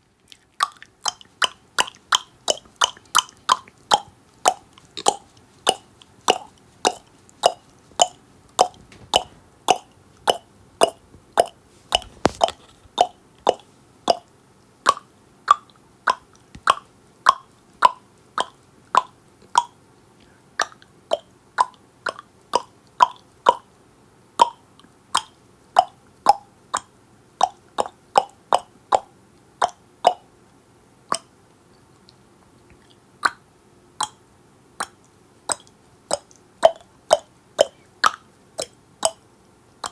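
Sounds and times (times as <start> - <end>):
tongue clicks: 0.2 - 23.7, 24.4 - 30.3, 31.1 - 39.9.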